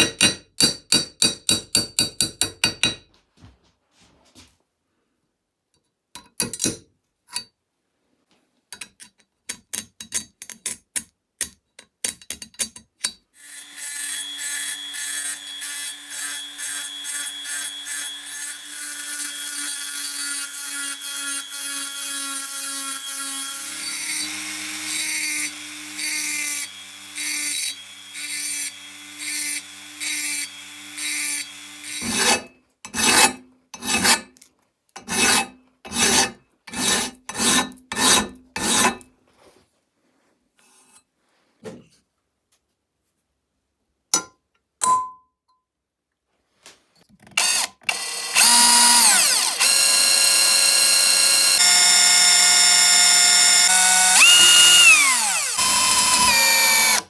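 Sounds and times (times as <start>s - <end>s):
power tool motor whine: 13.4s - 32.0s, 47.4s - 57.0s.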